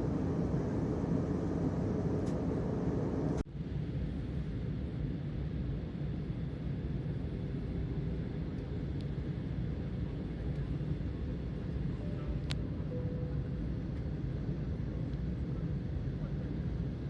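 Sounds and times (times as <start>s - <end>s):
jet engines rumbling in cabin: 0.0s - 17.0s.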